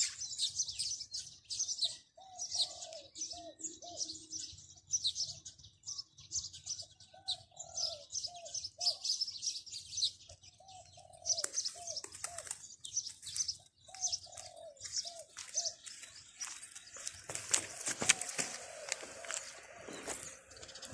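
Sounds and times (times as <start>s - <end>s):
small birds chirping: 0.0s - 20.9s
dove cooing: 2.1s - 4.5s, 6.9s - 9.2s, 10.5s - 12.6s, 13.9s - 15.9s, 17.3s - 20.9s.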